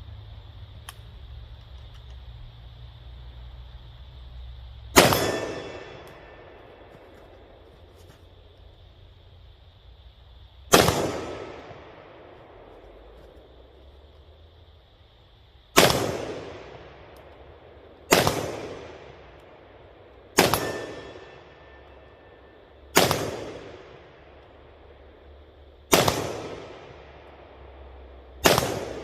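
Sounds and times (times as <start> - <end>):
rifle shots with echo: 5.0 - 6.6, 10.7 - 12.7, 15.8 - 17.1, 18.1 - 19.4, 20.3 - 21.7, 22.9 - 24.3, 25.9 - 27.3, 28.4 - 29.0.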